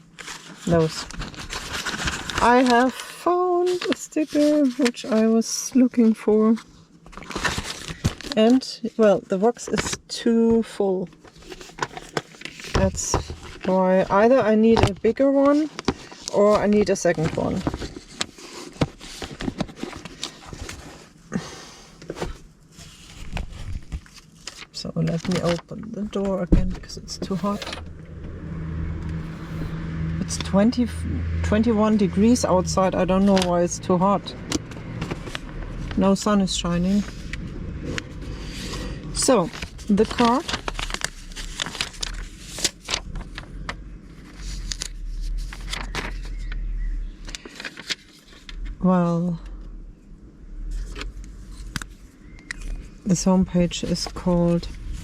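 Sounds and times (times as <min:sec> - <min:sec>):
cards rustling: 0:00.1 - 0:05.2, 0:11.2 - 0:21.2, 0:21.9 - 0:28.4, 0:36.9 - 0:46.6, 0:47.2 - 0:48.6
road traffic rumble: 0:25.3 - 0:47.7, 0:48.3 - 0:55.0.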